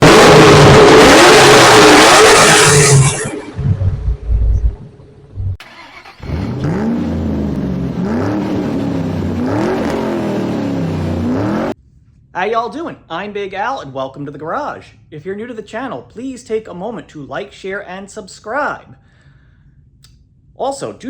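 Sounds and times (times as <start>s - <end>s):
car engine revving: 0.0s - 3.3s, 5.6s - 11.8s.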